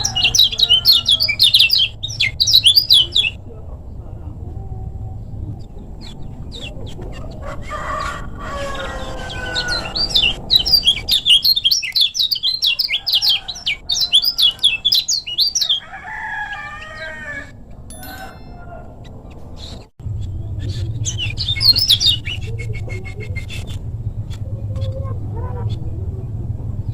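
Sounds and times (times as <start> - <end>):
bird singing high sharp chirps: 0.0 - 3.4, 9.7 - 15.8
lower wavering bird calls: 0.0 - 3.5, 4.8 - 23.7.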